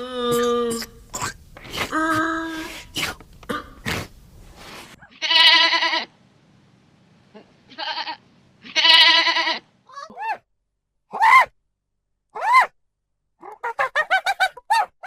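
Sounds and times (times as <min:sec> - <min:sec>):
sheep or goat bleating: 0:05.1 - 0:06.1, 0:07.7 - 0:09.6.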